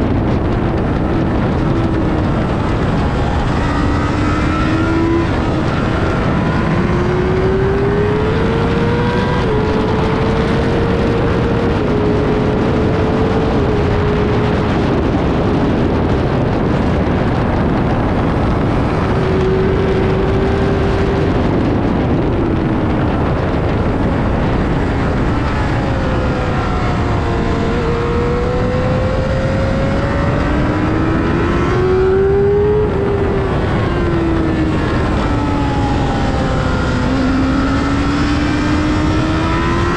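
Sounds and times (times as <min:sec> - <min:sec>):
motorcycle engine shifting gears: 0:00.0 - 0:39.9
wind rush: 0:00.0 - 0:39.9.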